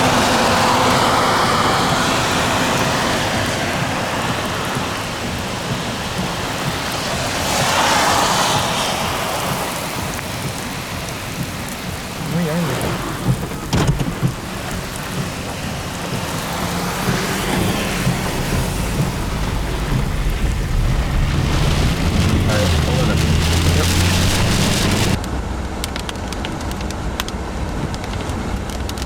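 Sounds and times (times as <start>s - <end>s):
gusting wind: 0.0s - 29.0s
heavy rain: 0.0s - 29.0s
sharp knocks: 12.8s - 15.3s.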